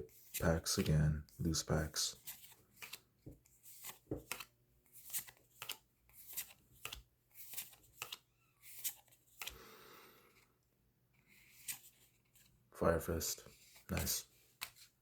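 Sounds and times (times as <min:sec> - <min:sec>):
card rustle: 0:00.1 - 0:09.5, 0:13.5 - 0:15.0
cards slapping and sliding: 0:02.2 - 0:09.6, 0:13.6 - 0:15.0.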